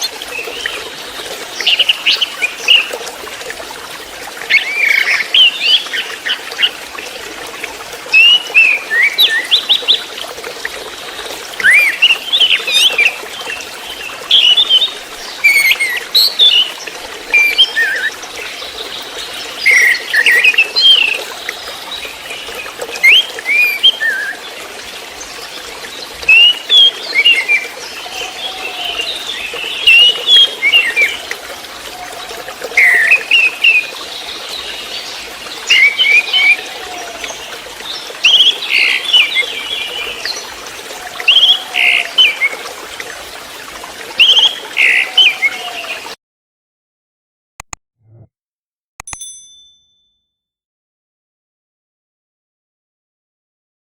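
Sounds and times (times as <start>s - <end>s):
water trickling: 0.0s - 46.2s.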